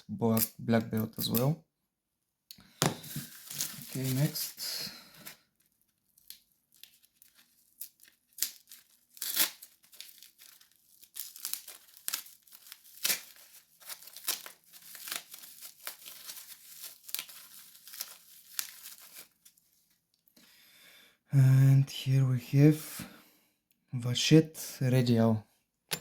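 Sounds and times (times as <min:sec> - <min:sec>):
packaging crinkling and tearing: 0:02.9 - 0:20.0.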